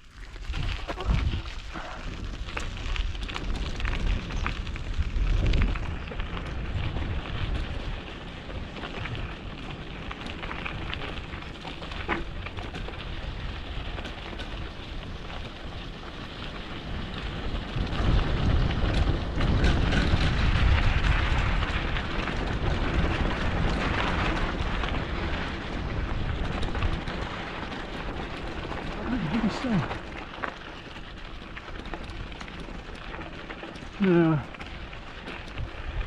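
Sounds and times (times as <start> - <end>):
bike rolling on dirt road: 0.0 - 36.0
wind buffeting microphone: 0.3 - 36.0.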